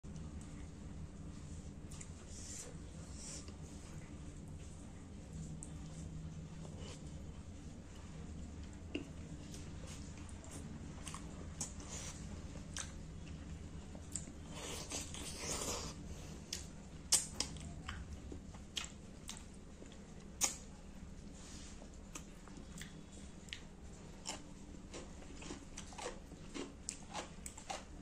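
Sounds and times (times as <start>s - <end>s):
chewing and lip-smacking: 8.6s - 20.6s, 22.1s - 28.0s.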